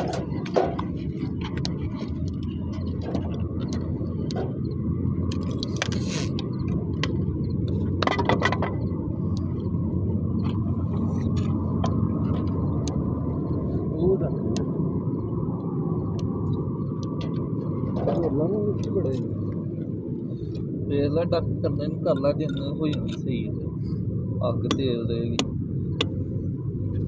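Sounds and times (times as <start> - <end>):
low rumble: 0.0 - 27.0
sharp pops and clicks: 0.5 - 4.6, 16.1 - 17.5.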